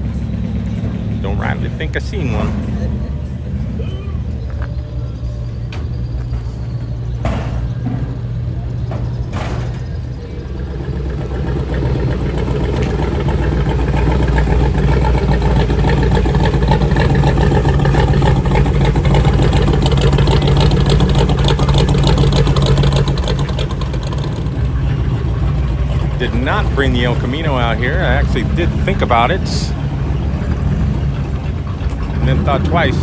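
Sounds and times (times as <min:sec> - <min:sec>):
car engine low rumble: 0:00.0 - 0:33.0.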